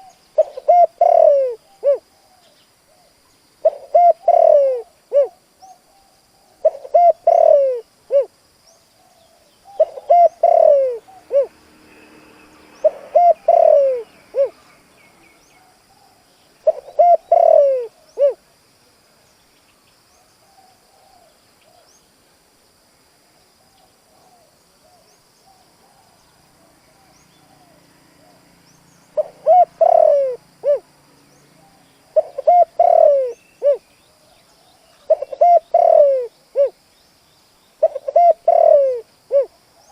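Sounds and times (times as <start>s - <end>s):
dove cooing: 0.0s - 8.3s, 9.1s - 11.6s, 12.8s - 14.6s, 15.6s - 18.4s, 29.2s - 30.9s, 31.6s - 33.9s, 34.6s - 36.8s, 37.8s - 39.9s.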